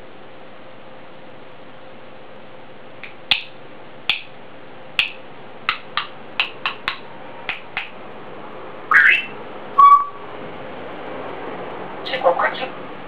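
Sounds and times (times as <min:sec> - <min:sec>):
parrot clicking: 0:05.0 - 0:08.0.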